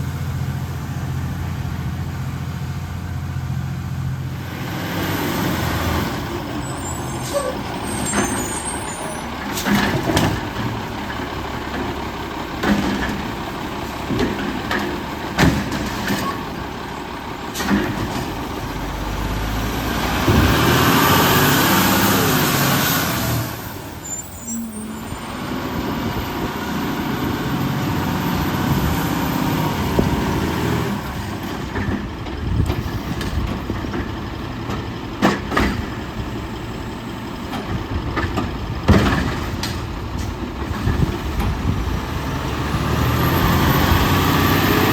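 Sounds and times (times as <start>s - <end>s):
garbage truck engine running: 0.0s - 44.9s
metal clanks and knocks: 12.6s - 13.4s, 14.0s - 16.6s, 37.5s - 41.7s.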